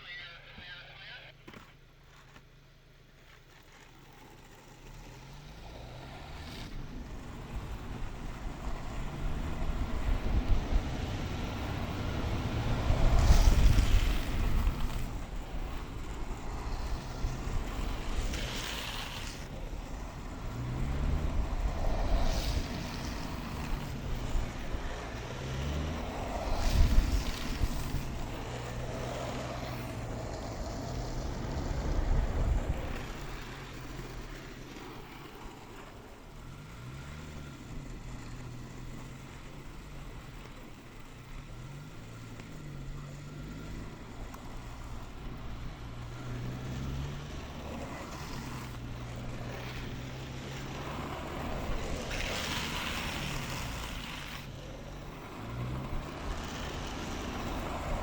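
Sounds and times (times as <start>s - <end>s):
longboard wheels rolling on asphalt: 1.4s - 58.0s
wheels sliding hiss: 3.2s - 58.0s
wind rushing over microphone: 6.8s - 18.3s, 19.4s - 29.2s, 29.9s - 34.3s.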